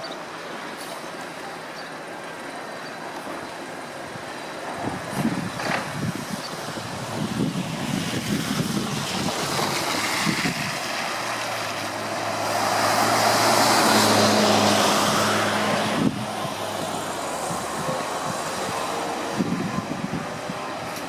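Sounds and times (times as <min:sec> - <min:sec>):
heavy vehicle driving past: 0:05.1 - 0:21.0.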